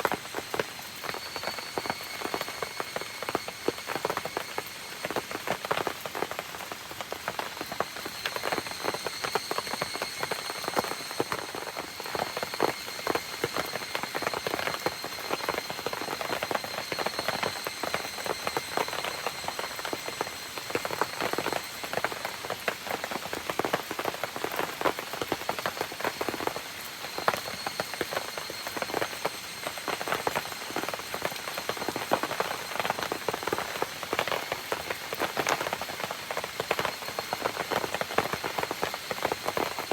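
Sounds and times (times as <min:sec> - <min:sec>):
rain hitting campfire and forest: 0:00.0 - 0:39.9
thin high tones: 0:08.0 - 0:21.6.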